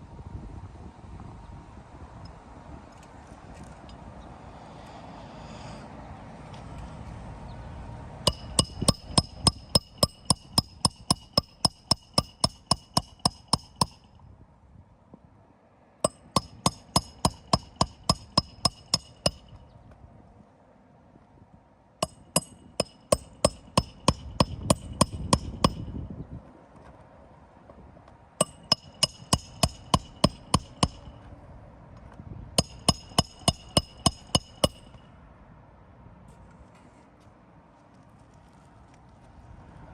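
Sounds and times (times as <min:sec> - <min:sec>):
hammer striking metal: 0:08.3 - 0:14.1, 0:16.0 - 0:19.6, 0:22.0 - 0:26.0, 0:28.4 - 0:31.2, 0:32.6 - 0:35.1.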